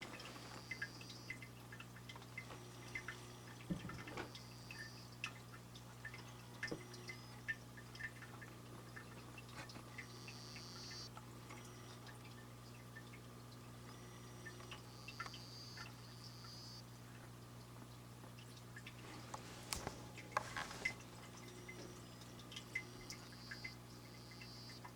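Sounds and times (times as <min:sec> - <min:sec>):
steady low hum: 0:00.0 - 0:24.9
frogs buzzing trills: 0:00.1 - 0:08.3, 0:08.9 - 0:13.0, 0:13.7 - 0:17.6, 0:19.1 - 0:24.9
faint clicks: 0:13.8 - 0:16.6.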